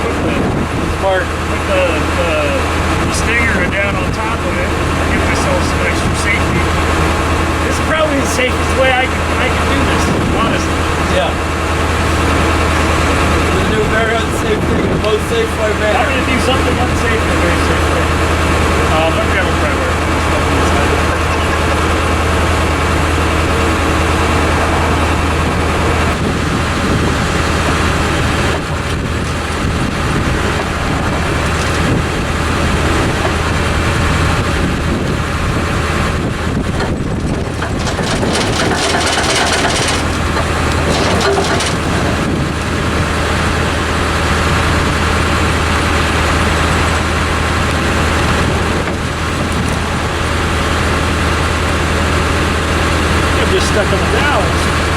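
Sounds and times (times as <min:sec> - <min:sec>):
tractor engine idling: 0:00.0 - 0:54.9
fast rattling: 0:36.7 - 0:42.8.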